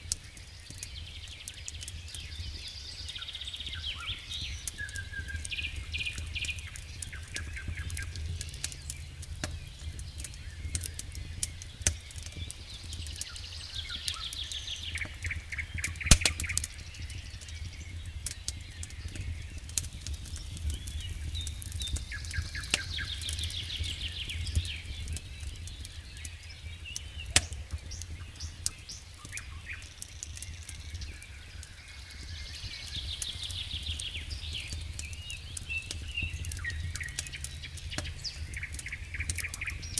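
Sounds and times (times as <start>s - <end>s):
campfire pops and crackles: 0.0s - 39.9s
songbirds singing trills: 0.0s - 39.9s
steady low rumble: 4.3s - 28.5s, 30.5s - 39.9s.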